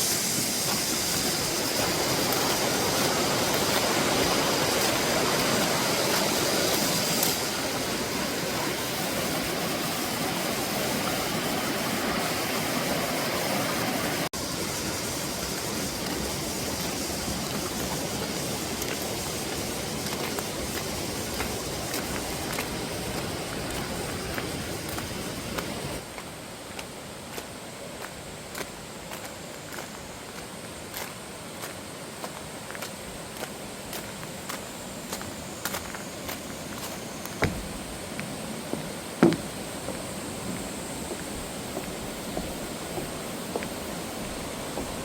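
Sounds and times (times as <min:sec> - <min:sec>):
cicadas buzzing: 0:00.0 - 0:45.0
stream rushing over rocks: 0:00.0 - 0:45.0.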